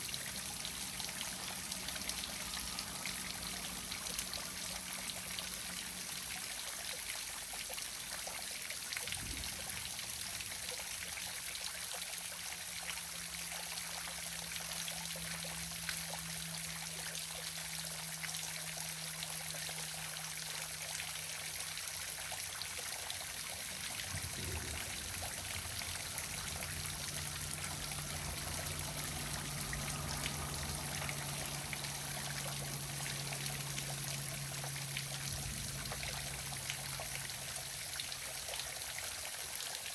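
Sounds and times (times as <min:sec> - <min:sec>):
waterfall splashing: 0:23.0 - 0:39.9.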